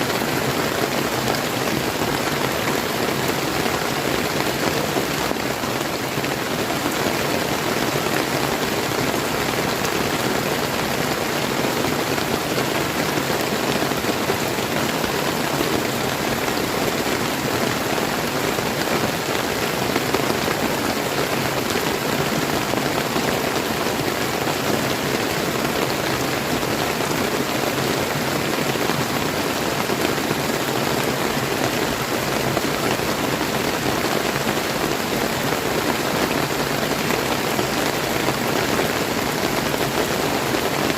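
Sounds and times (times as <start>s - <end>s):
rain falling on a river: 0.0s - 40.9s.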